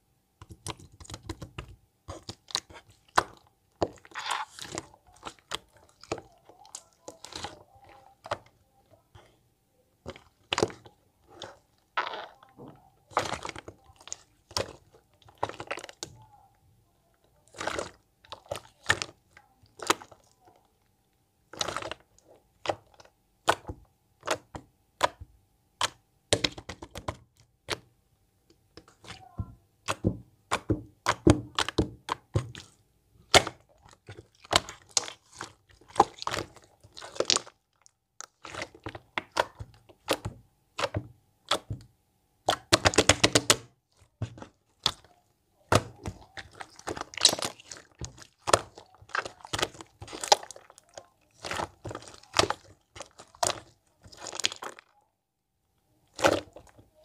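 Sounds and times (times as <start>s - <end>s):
slime popping crackles: 0.4s - 8.5s, 10.0s - 16.2s, 28.8s - 41.8s, 42.4s - 54.9s, 56.1s - 57.0s
slime squished by hand: 0.4s - 8.5s, 10.0s - 16.4s, 17.4s - 20.6s, 21.5s - 27.8s, 28.7s - 55.0s, 56.0s - 57.0s.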